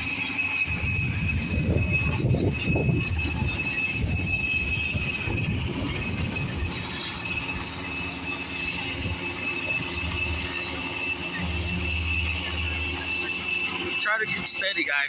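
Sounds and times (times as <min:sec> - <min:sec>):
helicopter turbine whine: 0:00.0 - 0:15.0.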